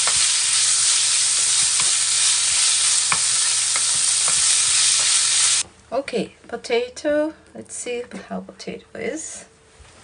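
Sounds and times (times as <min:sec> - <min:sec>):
vegetables sizzling in oil: 0:00.0 - 0:05.6.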